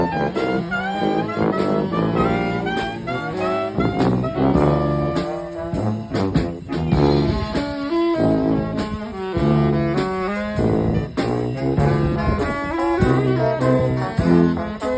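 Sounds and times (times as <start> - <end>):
drum beat: 0.0 - 12.1
brass band playing jazzy tune: 0.0 - 14.9.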